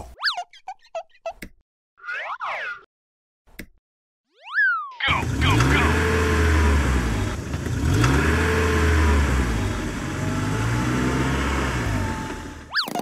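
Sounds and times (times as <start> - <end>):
tractor engine revving: 5.0 - 12.7.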